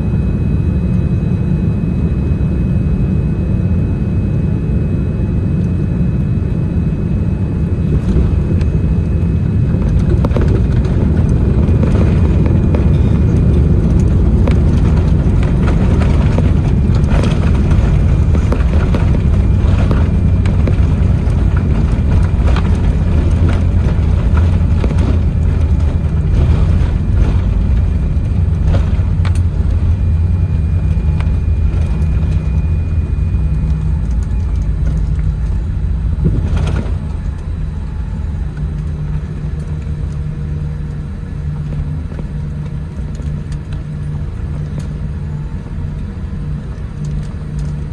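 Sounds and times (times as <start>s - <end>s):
airplane cabin rumble: 0.0s - 47.9s
faint steady whine: 0.0s - 47.9s
rattles and knocks: 7.8s - 33.0s.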